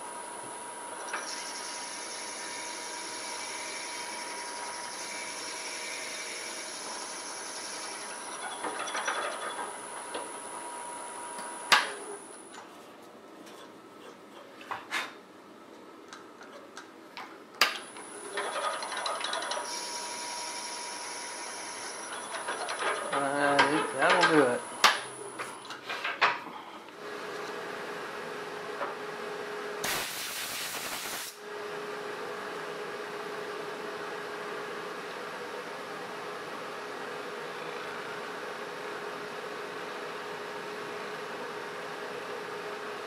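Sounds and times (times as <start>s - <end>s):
wood lathe high whine: 0.0s - 12.4s, 18.0s - 25.4s
drill bit cutting resin: 1.1s - 8.9s, 19.6s - 22.1s.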